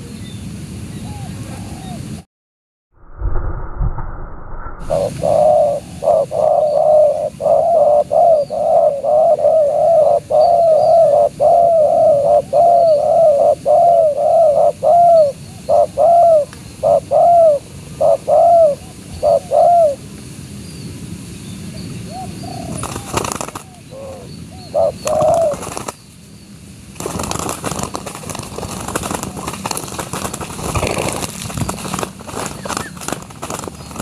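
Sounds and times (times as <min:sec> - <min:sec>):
dove cooing: 0:01.1 - 0:02.1, 0:04.9 - 0:20.0, 0:22.1 - 0:25.9.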